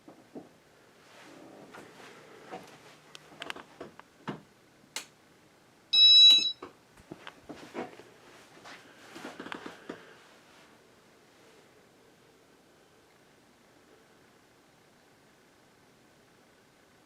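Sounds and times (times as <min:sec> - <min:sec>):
loud high-pitched electronic beep: 0:06.0 - 0:06.6.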